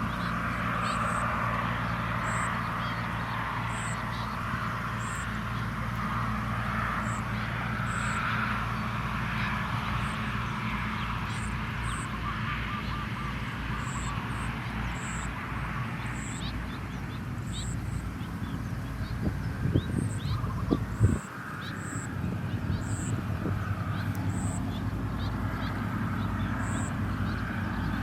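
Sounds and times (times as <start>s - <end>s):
nestlings chirping: 0.0s - 6.0s, 16.1s - 28.0s.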